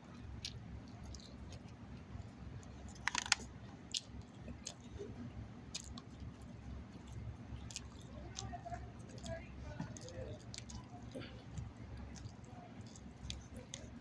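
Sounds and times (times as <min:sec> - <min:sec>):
person chewing food: 0:00.1 - 0:14.0
wet mouth clicks: 0:02.9 - 0:05.1.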